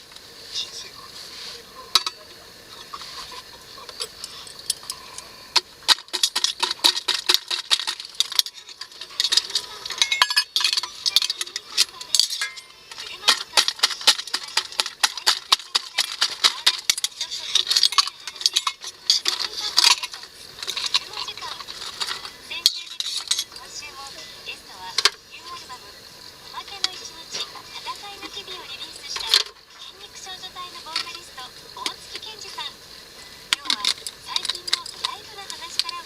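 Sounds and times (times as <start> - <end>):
utensils scraping cookware: 5.9 - 23.7.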